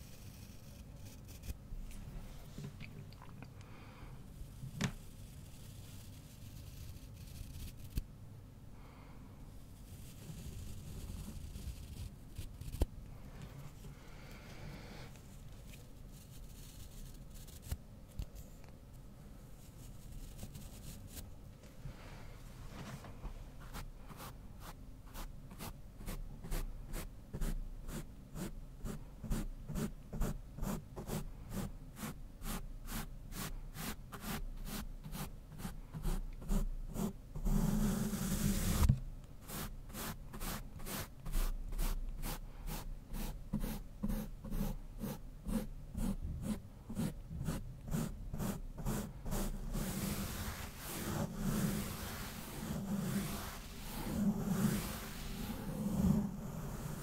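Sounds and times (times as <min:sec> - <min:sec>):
brush sweeping over microphone: 0:49.3 - 0:57.0.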